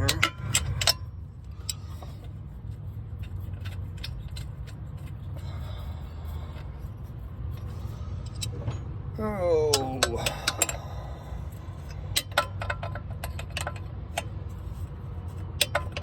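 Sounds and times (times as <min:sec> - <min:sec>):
wrench and bolt metallic clicks: 0:00.0 - 0:05.6, 0:07.5 - 0:09.0, 0:09.6 - 0:16.0
steady low hum: 0:00.0 - 0:16.0.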